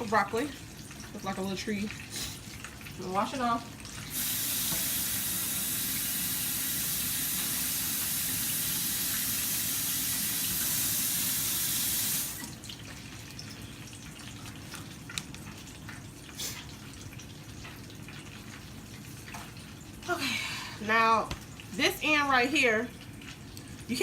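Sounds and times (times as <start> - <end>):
tap running into sink: 4.1 - 12.5.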